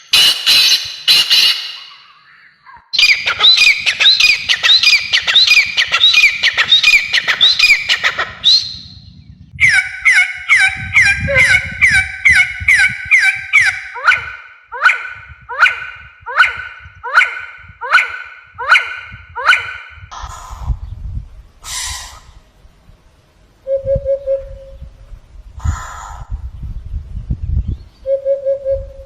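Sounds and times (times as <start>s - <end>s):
bird calling: 0.0s - 20.8s
lower-pitched bird calls: 0.0s - 22.4s.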